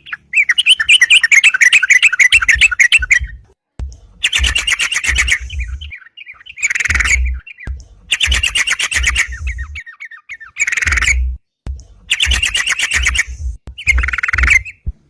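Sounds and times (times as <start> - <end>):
bulbul singing rapid chattering notes: 0.0 - 15.0.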